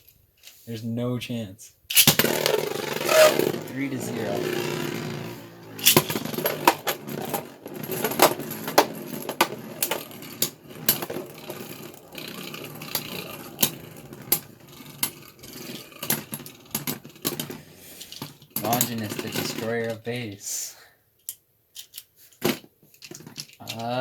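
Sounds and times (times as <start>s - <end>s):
plastic tops clacking: 1.9s - 16.4s
faint whir of spinning tops: 2.2s - 16.5s.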